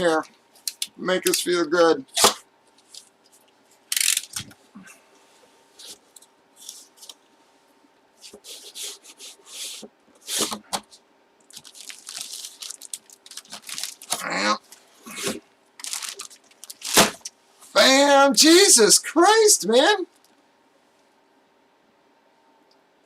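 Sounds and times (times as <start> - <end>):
packaging crinkling and tearing: 11.5 - 14.8, 15.8 - 17.3.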